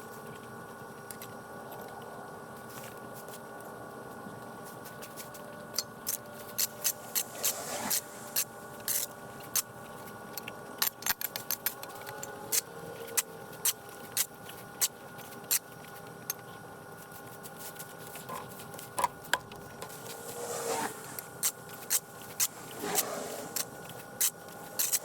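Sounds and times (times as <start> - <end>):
faint steady hum: 0.0 - 25.0
broom sweeping hard ground: 6.4 - 9.0, 19.6 - 25.0.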